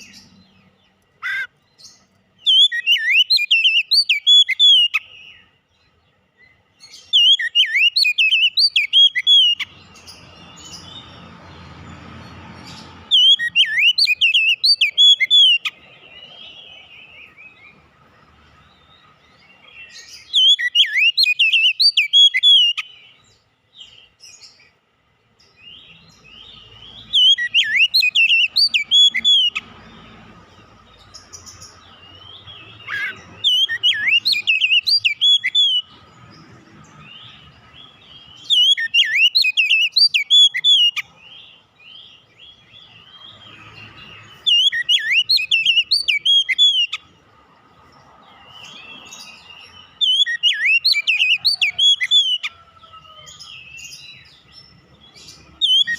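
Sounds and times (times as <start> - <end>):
bird singing whistled phrases: 2.4 - 5.5, 6.9 - 9.7, 13.1 - 15.7, 19.9 - 23.1, 25.6 - 29.6, 32.3 - 35.9, 38.2 - 41.0, 44.4 - 47.0, 49.6 - 52.7, 55.4 - 55.9.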